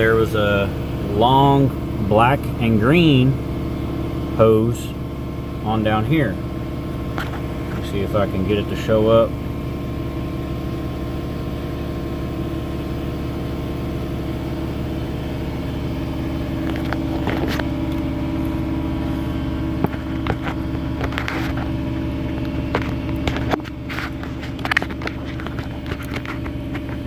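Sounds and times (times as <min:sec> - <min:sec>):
car engine idling: 0:00.0 - 0:27.0
clicks and knocks near microphone: 0:07.1 - 0:07.8, 0:16.6 - 0:18.1, 0:19.8 - 0:27.0.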